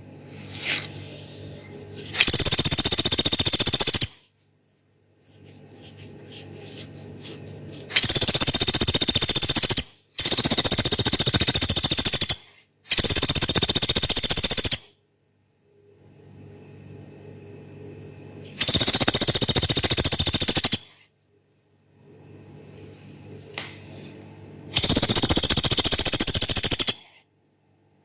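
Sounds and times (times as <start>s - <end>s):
faint low hum: 0.0s - 13.3s, 15.0s - 28.0s
woodpecker rattling calls: 2.2s - 4.2s, 7.9s - 14.8s, 18.6s - 20.9s, 24.8s - 27.0s.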